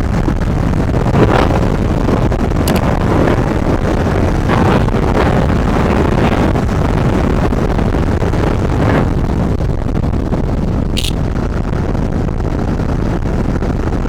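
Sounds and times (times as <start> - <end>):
road noise: 11.0 - 11.3.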